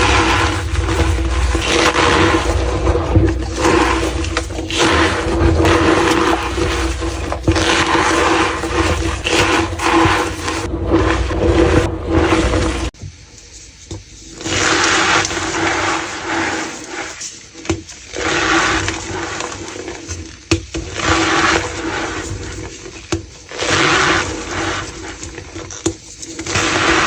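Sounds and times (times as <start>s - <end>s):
chalk being crushed: 0.0s - 13.0s.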